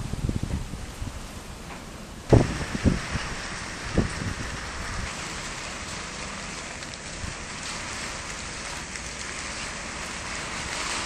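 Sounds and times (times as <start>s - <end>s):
rain hissing: 0.0s - 11.0s.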